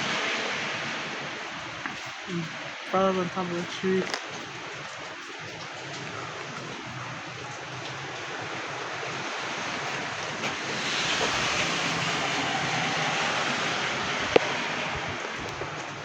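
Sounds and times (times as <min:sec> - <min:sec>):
wind rushing through trees: 0:00.0 - 0:16.0
wind buffeting microphone: 0:03.8 - 0:16.0.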